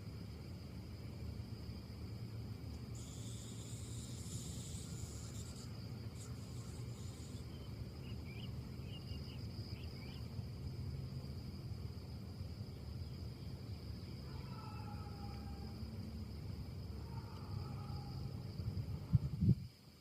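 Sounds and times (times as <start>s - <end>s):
insect trill: 0.0s - 20.0s
faint bird chirps: 3.0s - 10.3s.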